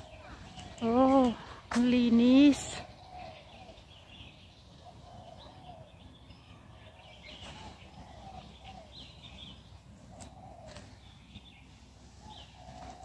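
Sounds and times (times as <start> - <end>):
birds chirping and warbling: 0.0 - 13.0.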